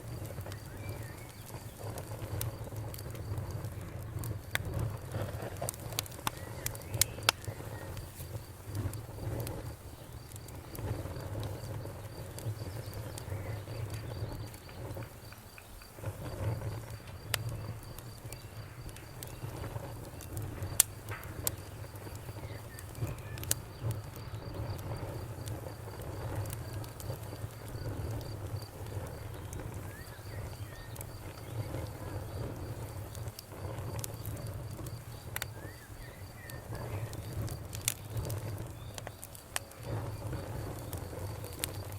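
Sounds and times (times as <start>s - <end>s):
bonfire crackling and popping: 0.0s - 41.9s
crickets chirping: 0.0s - 41.9s.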